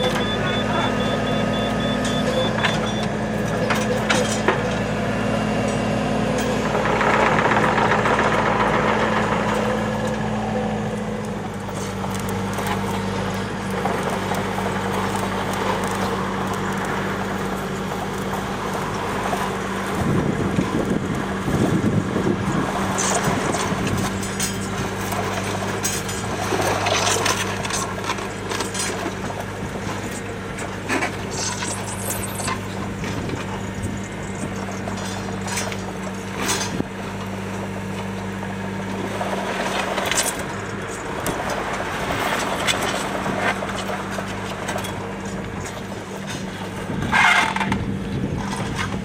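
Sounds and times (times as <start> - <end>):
excavator engine running: 0.0 - 49.0
machine rattling and clattering: 6.4 - 9.8.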